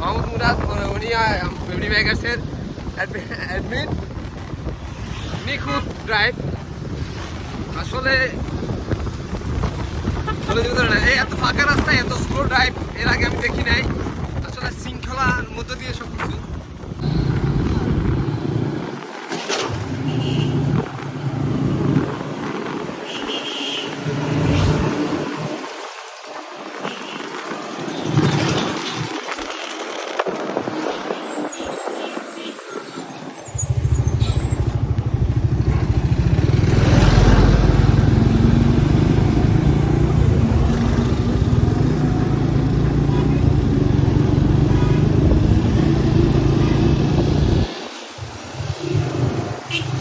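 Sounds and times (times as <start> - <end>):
wind and road noise: 0.0 - 50.0
motorcycle engine running: 33.8 - 45.2.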